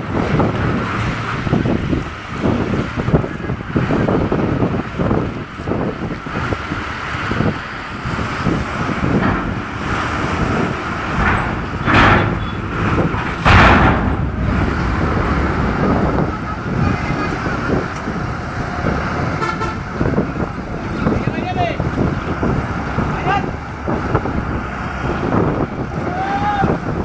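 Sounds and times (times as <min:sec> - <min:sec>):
road vehicle noise: 0:00.0 - 0:27.0
wind on microphone: 0:00.0 - 0:27.0
horn toots: 0:19.2 - 0:20.2.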